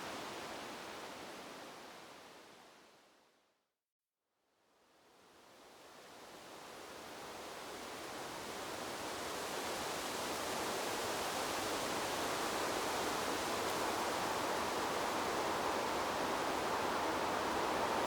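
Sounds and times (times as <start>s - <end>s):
wind rustling through bamboo: 0.0s - 2.9s, 5.6s - 18.0s.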